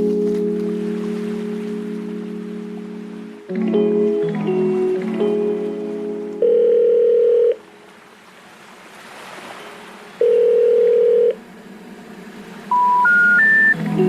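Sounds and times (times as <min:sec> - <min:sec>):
telephone ringback tone: 0:06.4 - 0:07.6, 0:10.2 - 0:11.4, 0:12.7 - 0:13.8
rising information tone notes: 0:11.3 - 0:14.0.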